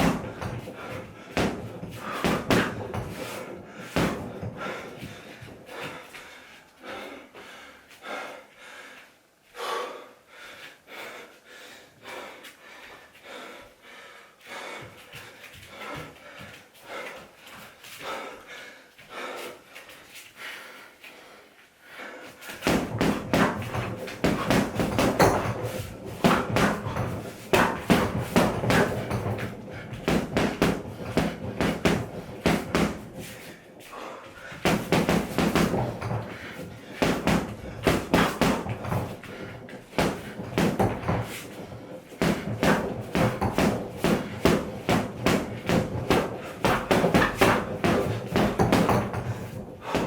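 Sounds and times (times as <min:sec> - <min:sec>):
punches hitting heavy bag: 0:00.0 - 0:05.6, 0:22.5 - 0:33.6, 0:34.4 - 0:50.0.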